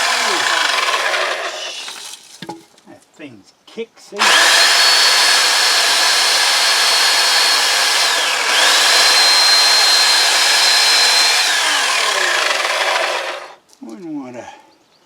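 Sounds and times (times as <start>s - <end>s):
electric chainsaw whining: 0.0s - 2.4s, 4.2s - 13.6s.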